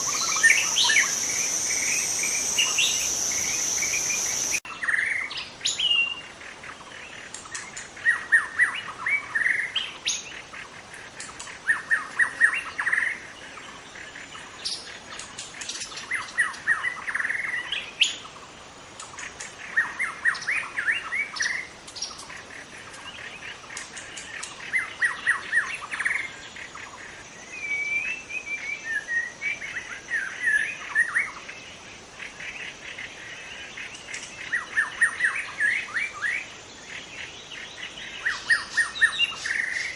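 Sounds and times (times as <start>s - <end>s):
bird singing rapid chirps: 0.0s - 10.5s, 32.6s - 39.9s.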